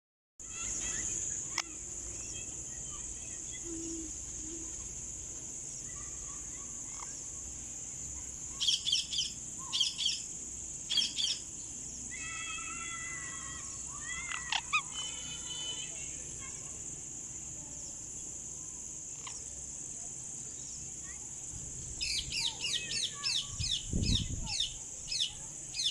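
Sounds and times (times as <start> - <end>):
high-pitched insect hum: 0.4 - 25.9
parakeet screeching: 12.2 - 15.8.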